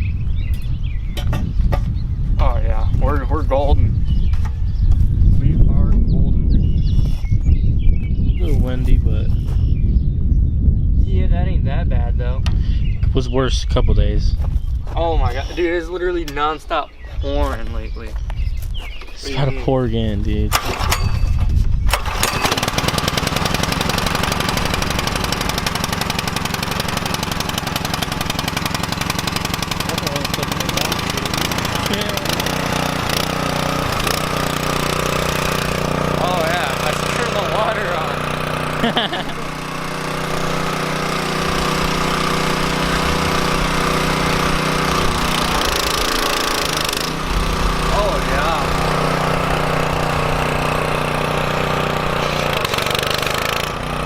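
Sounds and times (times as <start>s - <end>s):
pressure washer engine running: 22.0s - 54.0s.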